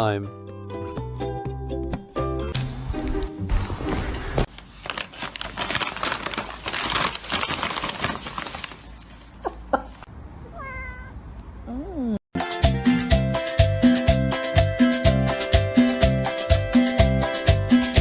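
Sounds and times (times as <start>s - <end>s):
music: 0.0s - 4.4s, 12.4s - 18.0s
scratchy rustling and clattering: 2.6s - 10.1s
cat meowing: 10.5s - 11.2s.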